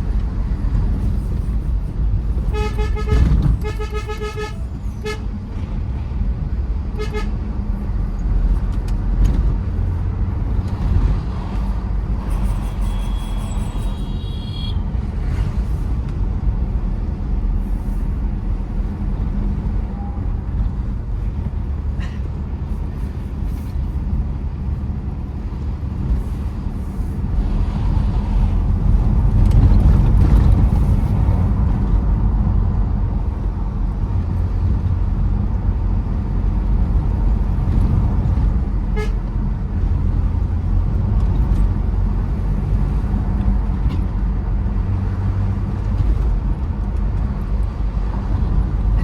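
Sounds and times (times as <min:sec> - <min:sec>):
engine and road rumble: 0:00.0 - 0:49.0.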